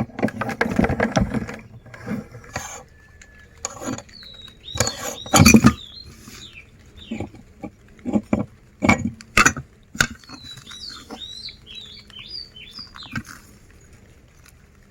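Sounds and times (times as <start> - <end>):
short high squeaks: 1.7 - 7.3.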